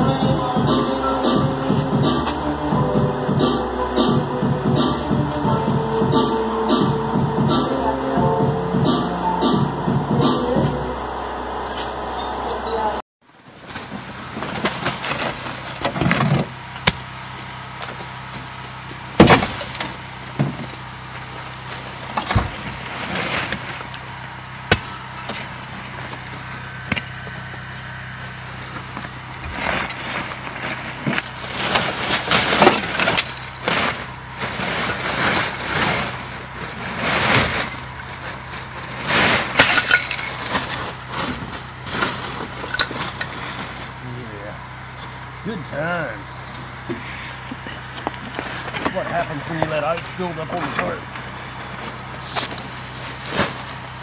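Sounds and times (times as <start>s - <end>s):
ice cracking and shattering: 31.6s - 34.0s, 39.4s - 40.8s.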